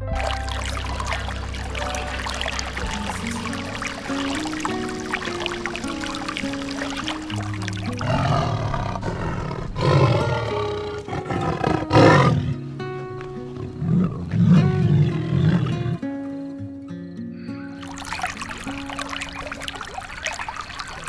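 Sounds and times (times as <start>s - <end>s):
music with held notes: 0.0s - 20.0s
animal calling roughly: 0.2s - 12.7s, 13.5s - 16.0s.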